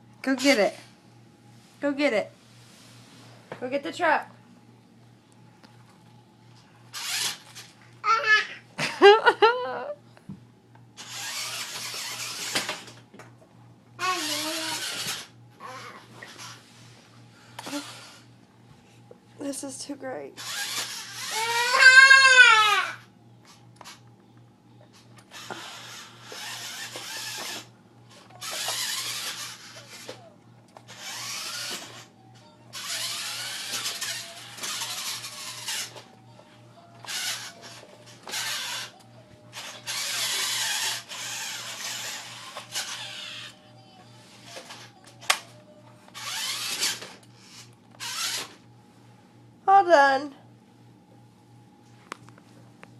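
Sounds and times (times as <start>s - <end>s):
toy truck electric motor whirring: 6.9s - 8.5s, 11.0s - 13.0s, 14.0s - 16.8s, 17.6s - 18.3s, 20.4s - 24.0s, 25.2s - 32.1s, 32.7s - 36.2s, 36.9s - 45.4s, 46.1s - 48.6s
child laughing and squealing: 21.3s - 23.0s.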